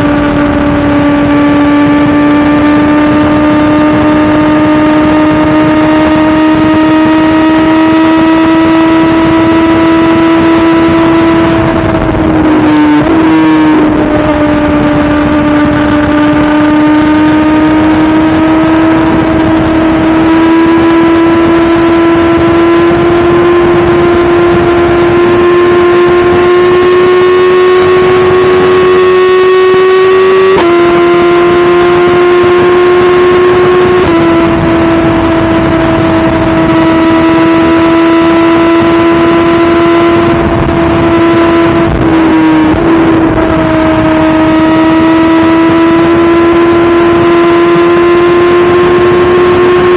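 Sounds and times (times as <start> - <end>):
motorcycle engine at high revs: 0.0 - 49.9.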